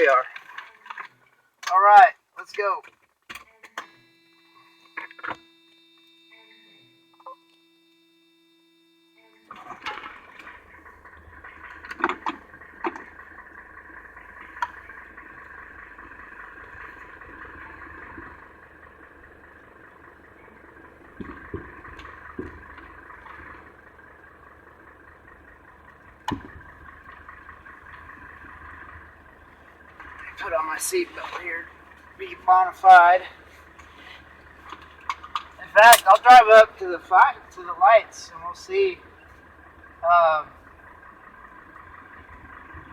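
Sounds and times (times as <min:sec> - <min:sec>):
car engine running: 0:09.3 - 0:42.9
clicks and knocks in car cabin: 0:26.3 - 0:26.7.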